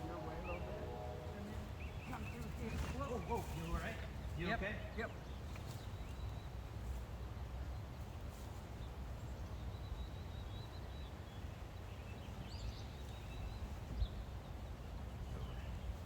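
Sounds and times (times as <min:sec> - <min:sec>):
low rumble: 0:00.0 - 0:02.7
bird chirping: 0:00.0 - 0:03.2.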